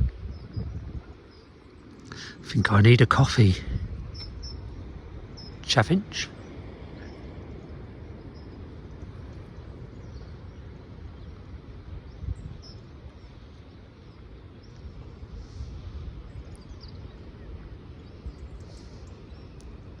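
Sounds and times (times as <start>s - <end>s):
wind buffeting microphone: 0.0s - 20.0s
faint bird calls: 1.3s - 4.7s.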